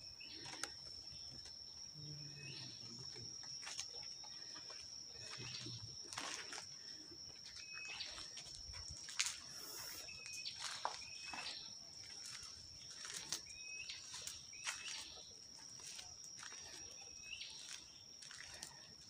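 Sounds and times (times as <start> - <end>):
high-pitched whine: 9.2 - 10.8.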